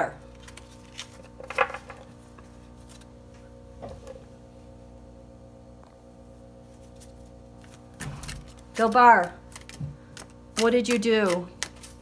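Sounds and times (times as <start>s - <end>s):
faint steady hum: 0.0s - 12.0s
cards being shuffled: 0.3s - 3.1s, 6.8s - 12.0s.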